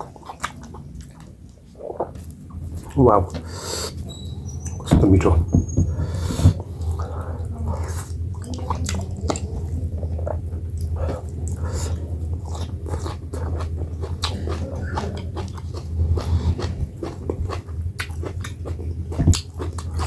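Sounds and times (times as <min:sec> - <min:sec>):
steady low hum: 0:00.0 - 0:20.0
wet chewing and mouth smacks: 0:10.2 - 0:20.0.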